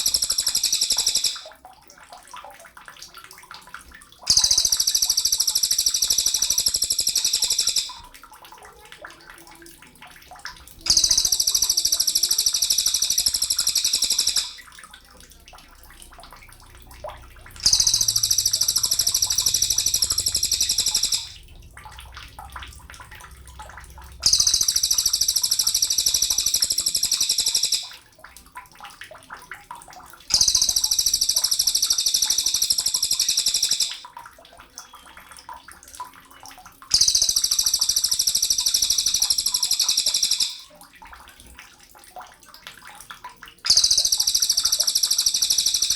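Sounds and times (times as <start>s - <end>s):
bird trilling: 4.3s - 7.9s, 10.9s - 14.6s, 17.6s - 21.4s, 24.2s - 27.9s.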